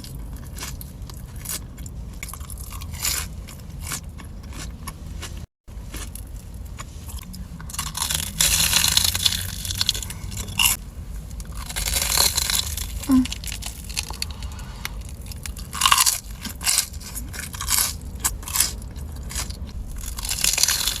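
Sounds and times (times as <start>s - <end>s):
crunching and chewing food: 0.0s - 21.0s.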